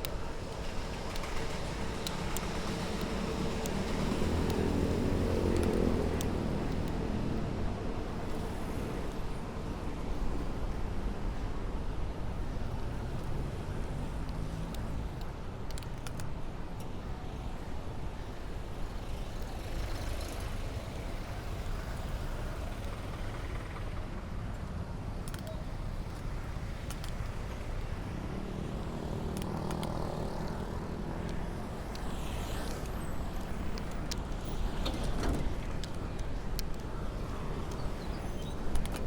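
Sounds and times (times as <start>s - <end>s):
street traffic: 0.0s - 39.0s
vehicle engine hum: 0.0s - 39.0s.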